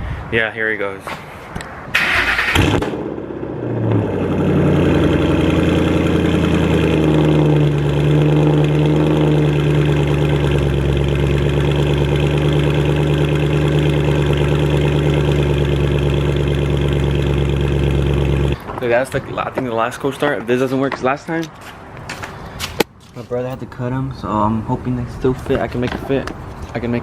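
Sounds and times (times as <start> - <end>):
car engine starting and idling: 1.9 - 18.6.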